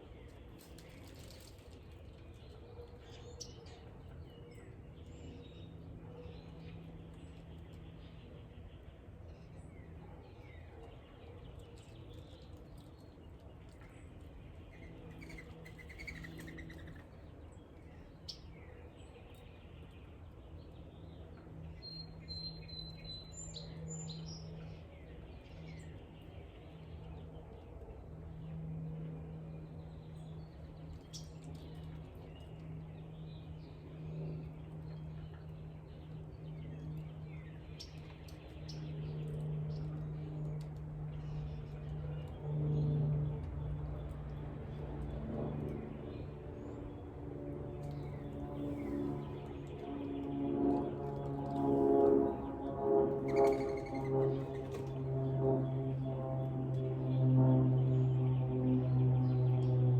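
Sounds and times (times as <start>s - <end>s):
wild birds chirping faintly: 0.0s - 59.9s
steady low hum: 1.7s - 59.9s.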